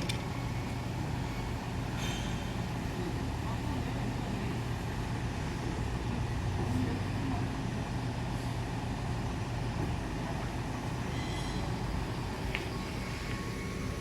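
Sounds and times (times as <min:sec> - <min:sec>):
low machine hum: 0:00.0 - 0:14.0
high-pitched whine: 0:11.0 - 0:14.0.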